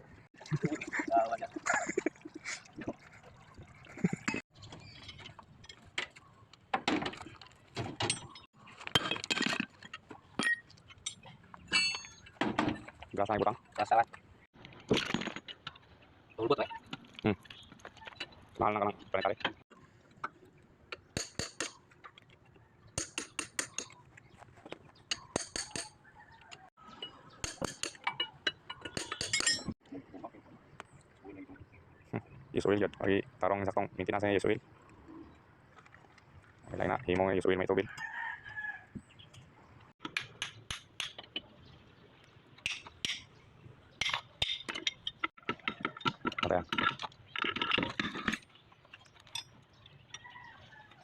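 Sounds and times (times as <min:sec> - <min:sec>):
metal tools clinking: 0:08.0 - 0:12.9, 0:26.9 - 0:29.8.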